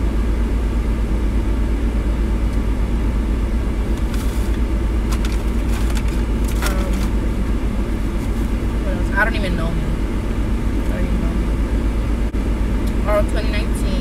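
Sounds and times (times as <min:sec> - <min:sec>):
car engine idling: 0:00.0 - 0:14.0
rustles and clicks: 0:03.9 - 0:07.4, 0:08.0 - 0:08.8.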